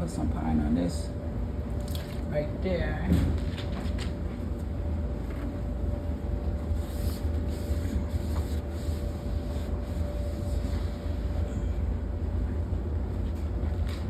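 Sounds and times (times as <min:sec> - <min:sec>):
laundry machines rumbling: 0:00.0 - 0:14.0
thin constant hum: 0:00.0 - 0:14.0.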